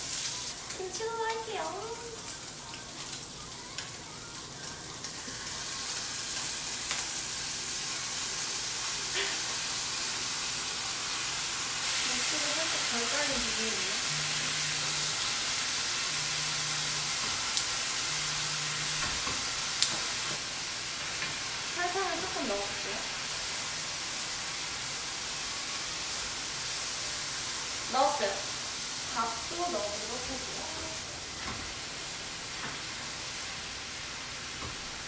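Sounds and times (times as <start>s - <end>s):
food sizzling in a wok: 0.0s - 35.0s
utensils clicking against wok: 19.2s - 20.4s.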